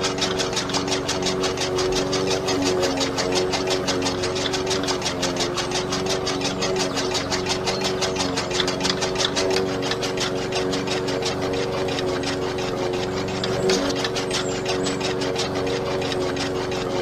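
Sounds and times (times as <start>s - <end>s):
fast even clicking: 0.0s - 17.0s
small motor running: 0.0s - 17.0s.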